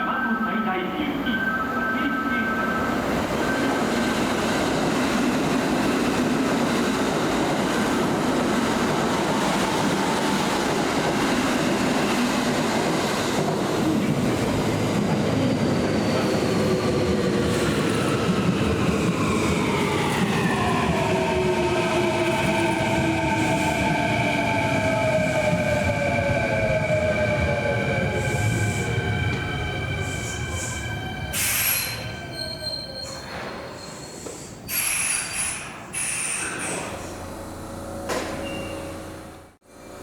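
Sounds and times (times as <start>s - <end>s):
train wheels on rails: 3.0s - 40.0s.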